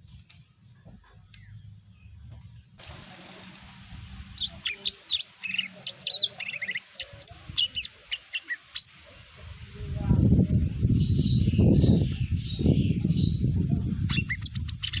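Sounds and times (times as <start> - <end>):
bird singing whistled notes: 4.4 - 9.0, 14.1 - 15.0.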